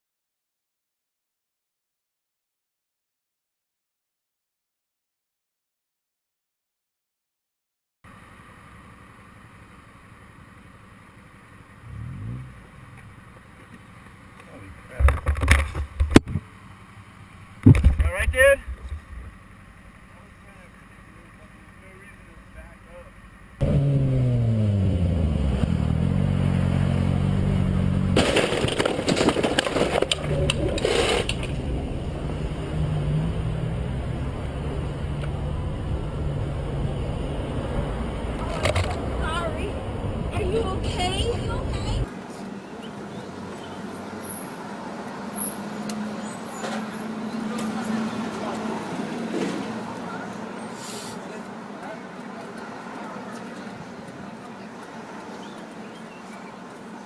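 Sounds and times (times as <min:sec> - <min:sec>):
vehicle engine and road noise: 0:08.1 - 0:57.0
engine revving: 0:11.8 - 0:13.3, 0:23.6 - 0:57.0
loud crunching collision: 0:27.7 - 0:32.1.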